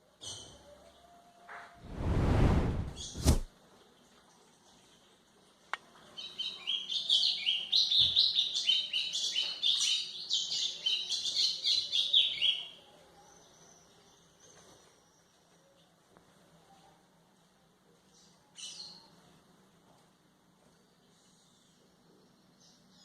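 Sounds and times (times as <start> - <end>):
bird singing sweeping chirps: 2.9 - 3.4.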